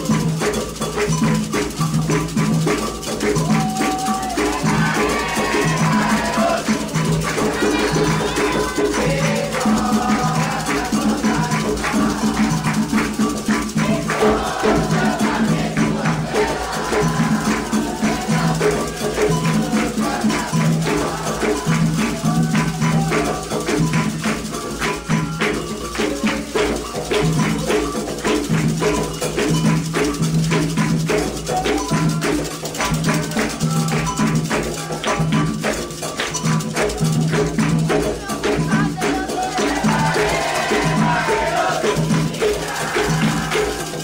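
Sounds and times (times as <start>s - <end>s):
hand drums beating fast rhythm: 0.0s - 44.0s
shaken rattle: 0.0s - 44.0s
voices chanting: 3.4s - 25.9s, 37.1s - 44.0s.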